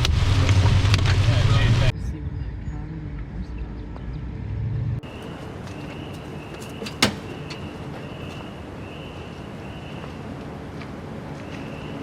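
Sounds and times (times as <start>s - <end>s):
steady rain: 0.0s - 1.9s.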